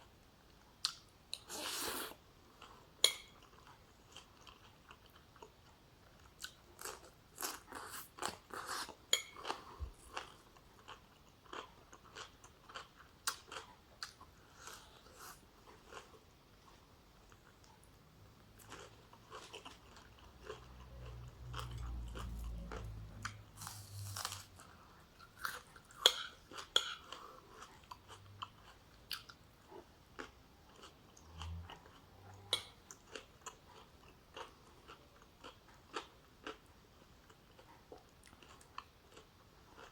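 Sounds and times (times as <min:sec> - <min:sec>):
person chewing and crunching food: 0:00.8 - 0:39.9.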